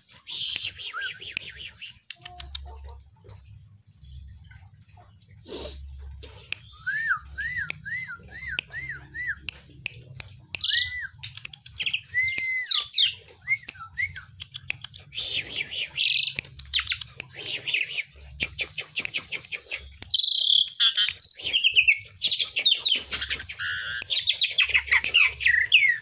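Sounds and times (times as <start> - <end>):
starling whistling: 0.3 - 2.0, 6.6 - 9.4, 11.9 - 14.3, 20.1 - 26.0
sharp clicks: 7.6 - 12.1, 13.6 - 17.8
harsh high chattering: 14.6 - 26.0.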